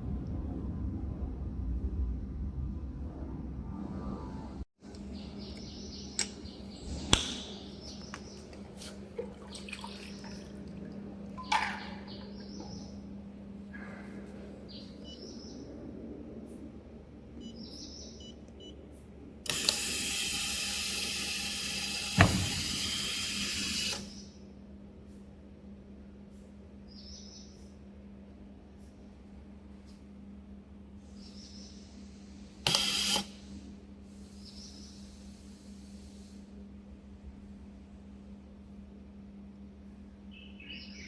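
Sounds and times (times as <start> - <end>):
clicks: 4.9 - 8.7
machine humming: 19.5 - 24.1.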